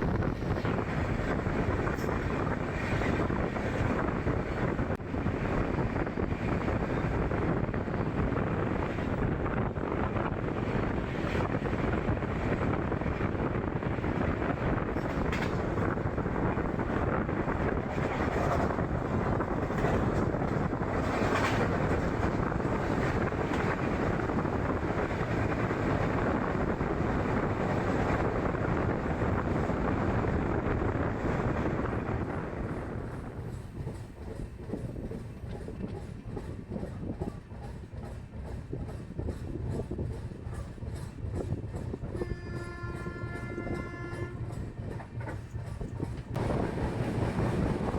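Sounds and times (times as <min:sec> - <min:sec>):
train rolling on rails: 0:00.0 - 0:47.9
train wheel clicks: 0:08.1 - 0:47.9.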